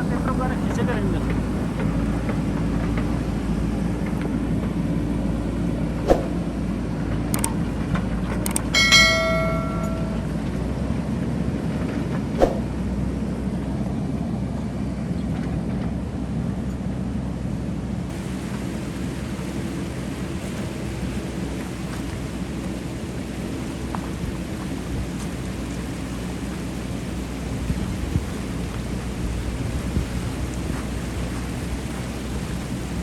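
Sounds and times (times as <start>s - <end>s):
diesel engine running: 0.0s - 33.0s
metallic knocks: 8.4s - 10.4s
ringing metal clang: 8.6s - 10.5s.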